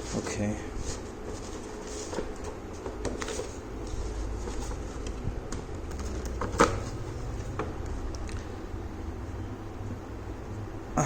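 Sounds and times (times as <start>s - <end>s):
cardboard packaging rustling: 0.0s - 7.6s.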